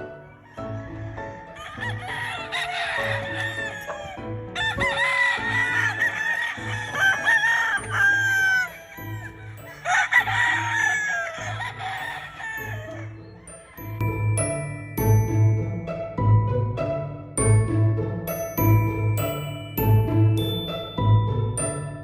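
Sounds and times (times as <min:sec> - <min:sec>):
background music with steady beat: 0:00.0 - 0:22.0
roosters crowing: 0:00.4 - 0:13.9.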